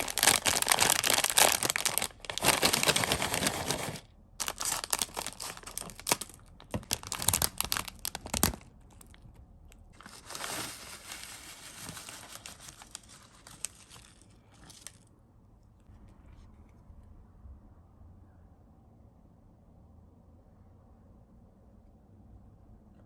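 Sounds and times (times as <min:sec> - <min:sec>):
plastic wrappers crackling: 0:00.0 - 0:15.0.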